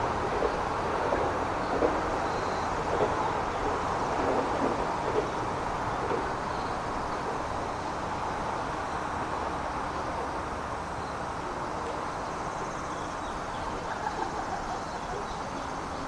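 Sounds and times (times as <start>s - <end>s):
sharp knocks of train wheels: 0.0s - 8.0s
train wheels rumbling on rails: 0.0s - 16.0s.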